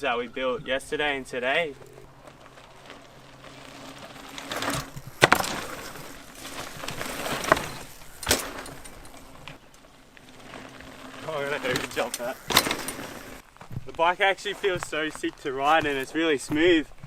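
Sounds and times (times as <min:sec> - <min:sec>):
bike tyres rolling on dirt: 0:00.0 - 0:17.0
sharp knocks of bike landings: 0:03.7 - 0:09.6, 0:11.5 - 0:13.4.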